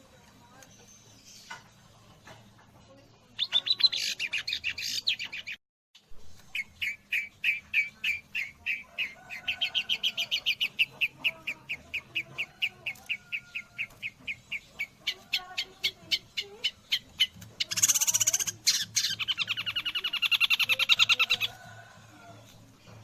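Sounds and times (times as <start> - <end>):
bird song: 0.4 - 2.4, 3.4 - 5.6, 6.4 - 23.0
sharp repeated bird chirping: 6.6 - 9.2, 13.1 - 21.5.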